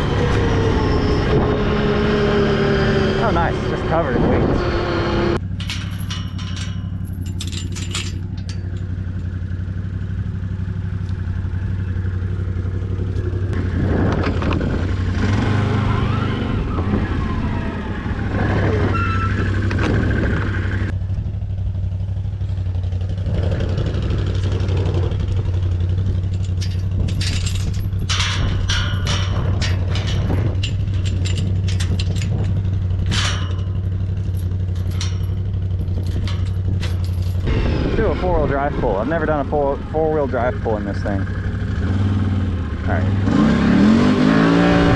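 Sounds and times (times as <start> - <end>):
atv engine running: 0.0 - 44.9
clattering and rattling: 5.4 - 11.8, 24.3 - 37.5.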